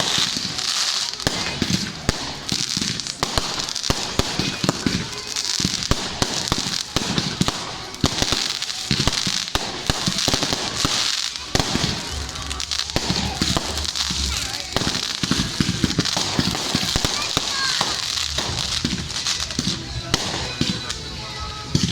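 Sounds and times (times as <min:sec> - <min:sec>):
fireworks bangs and crackling: 0:00.0 - 0:21.9
high fizzing crackle: 0:00.0 - 0:21.9.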